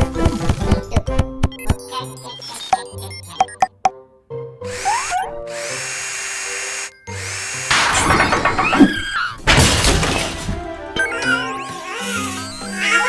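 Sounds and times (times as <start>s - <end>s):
cartoon background music: 0.0s - 13.0s
tools clattering and rattling: 7.7s - 11.6s.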